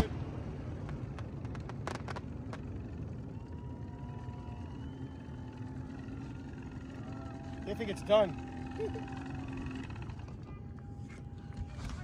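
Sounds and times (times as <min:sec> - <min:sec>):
fireworks crackling and popping: 0:00.0 - 0:02.8
low rumble: 0:00.0 - 0:12.0
faint steady tone: 0:02.3 - 0:12.0.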